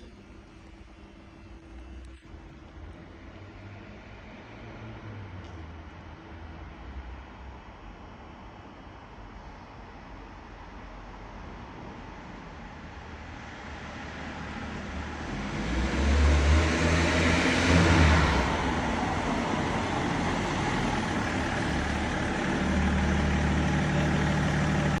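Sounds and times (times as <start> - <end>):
car accelerating hard: 14.6 - 25.0.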